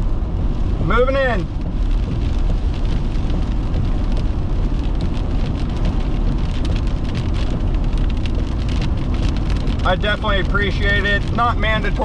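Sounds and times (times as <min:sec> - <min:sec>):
heavy rain on a car: 0:00.0 - 0:12.0
road and engine rumble: 0:00.0 - 0:12.0.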